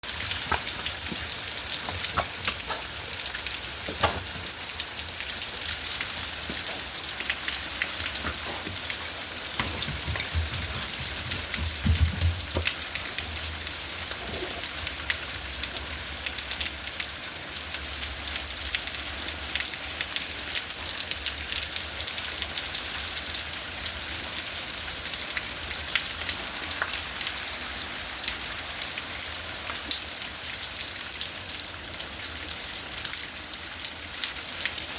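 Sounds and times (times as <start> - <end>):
hailstones ticking on hard surfaces: 0.1 - 13.4.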